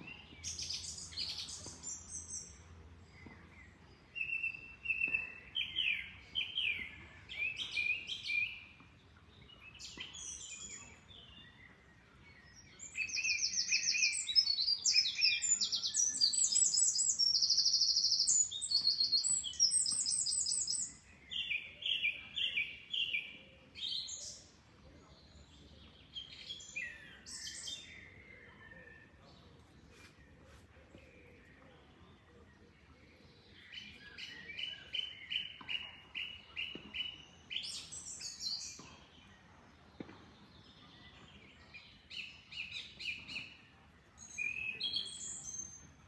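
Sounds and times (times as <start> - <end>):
birds chirping: 4.2 - 23.0.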